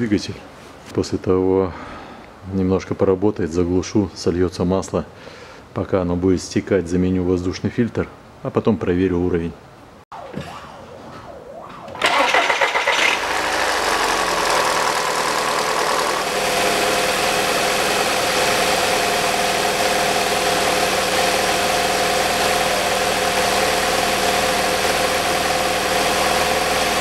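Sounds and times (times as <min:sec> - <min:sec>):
engine starter cranking: 0:12.0 - 0:17.4
car engine idling: 0:12.0 - 0:27.0.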